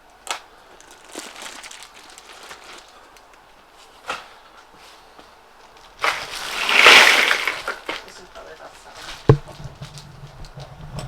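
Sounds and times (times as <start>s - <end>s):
faint rustling: 0.6s - 11.0s
sharp knock: 9.3s - 9.6s.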